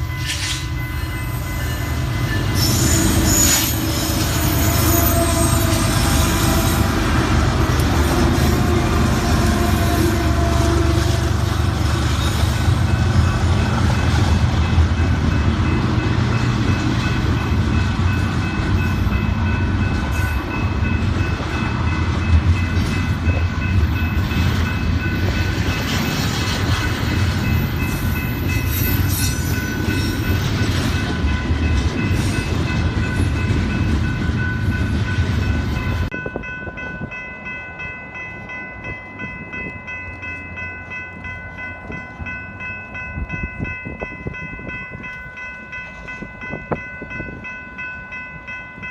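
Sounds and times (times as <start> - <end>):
diesel freight train rumbling: 0.0 - 48.9
steady horn-like tone: 2.6 - 7.2.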